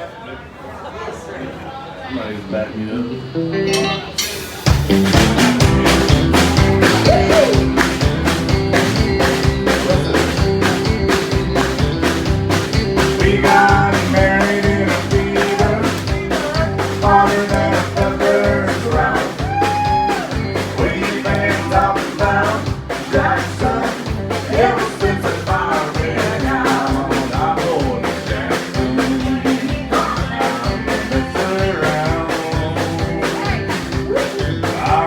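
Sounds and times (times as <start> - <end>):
live country band: 2.2 - 35.0
higher melodic line: 3.2 - 18.0
drums quick beat: 3.7 - 35.0.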